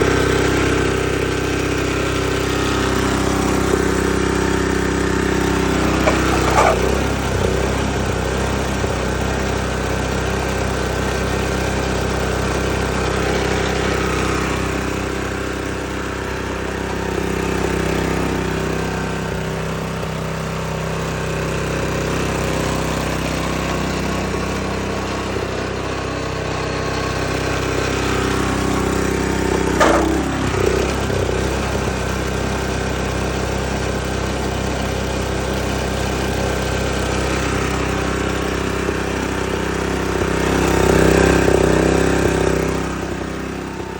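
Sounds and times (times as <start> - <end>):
snowblower engine running: 0.0 - 43.9
brief knock: 29.5 - 30.2.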